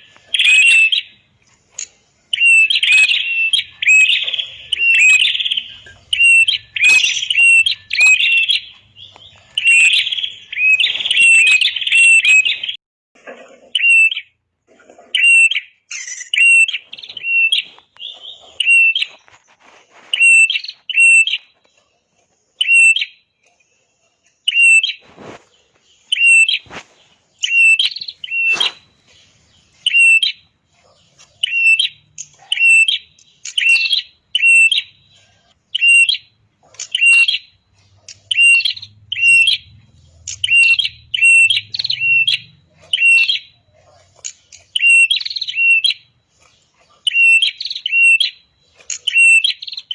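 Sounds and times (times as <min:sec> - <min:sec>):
bird singing high chirps: 0:00.0 - 0:01.3, 0:02.3 - 0:12.8, 0:15.2 - 0:19.4, 0:20.2 - 0:21.6, 0:24.5 - 0:25.0, 0:26.0 - 0:30.5, 0:31.4 - 0:37.6, 0:38.2 - 0:43.6, 0:44.7 - 0:46.2, 0:47.1 - 0:49.9.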